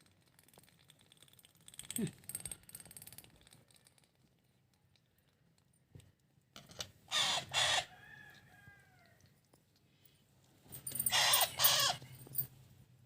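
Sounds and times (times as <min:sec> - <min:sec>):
parakeet chicks squawking: 0:07.1 - 0:07.9, 0:11.1 - 0:12.0
drawn-out chick call: 0:07.1 - 0:09.1, 0:11.1 - 0:12.0.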